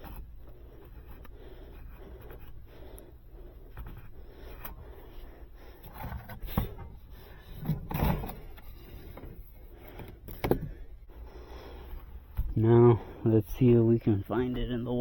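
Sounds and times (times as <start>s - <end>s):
wire rubbing and scraping: 0.0s - 10.0s.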